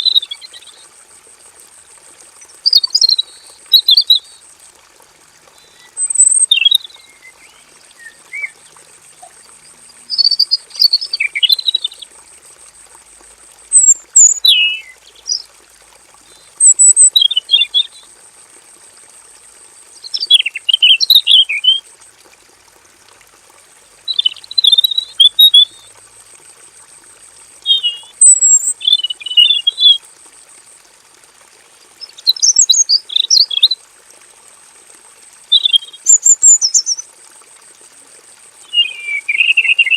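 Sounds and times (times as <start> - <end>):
bird singing warbled phrases: 2.7 - 4.4, 5.6 - 8.6, 10.1 - 12.0, 13.7 - 15.4, 16.5 - 18.0, 20.0 - 21.8, 24.1 - 25.8, 27.6 - 30.0, 32.0 - 33.8, 35.5 - 37.0, 38.6 - 39.9.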